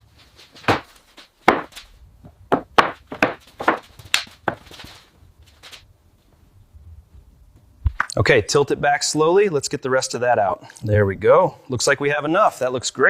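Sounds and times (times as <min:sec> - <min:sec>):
sharp knocks: 0:00.6 - 0:04.7.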